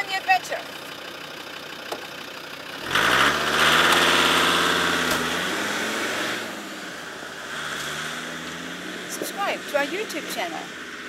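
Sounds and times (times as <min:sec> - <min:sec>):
car engine starting and driving off: 0:00.0 - 0:11.0.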